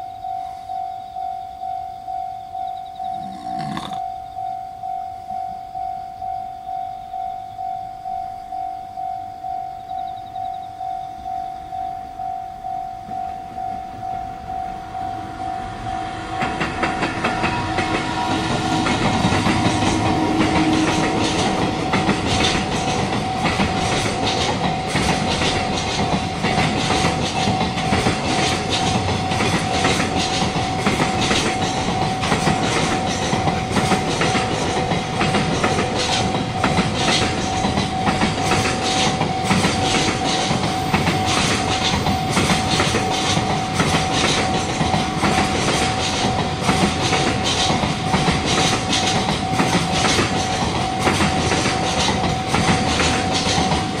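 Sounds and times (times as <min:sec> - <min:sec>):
train wheels clicking over joints: 0:03.0 - 0:04.0, 0:15.6 - 0:54.0.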